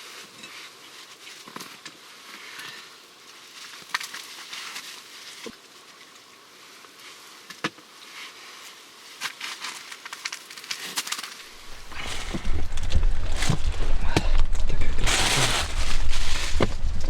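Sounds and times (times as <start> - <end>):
sharp snaps and pops: 9.2 - 11.5
campfire crackling: 11.4 - 17.0
low rumble: 11.5 - 17.0.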